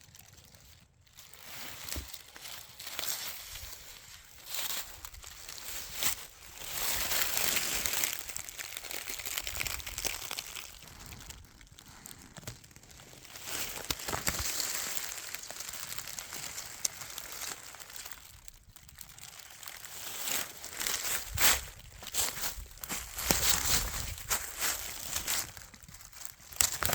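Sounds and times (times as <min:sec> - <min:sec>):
footsteps crunching through dry leaves: 0:00.0 - 0:26.9
twigs snapping clicks: 0:07.0 - 0:18.6, 0:20.9 - 0:26.9.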